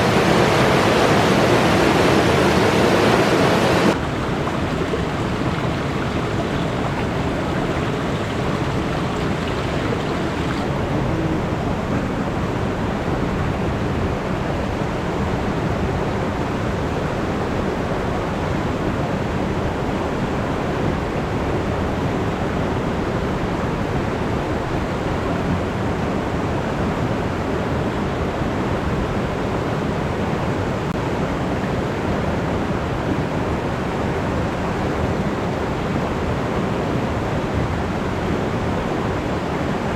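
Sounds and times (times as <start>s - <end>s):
river water rushing: 0.0s - 11.8s.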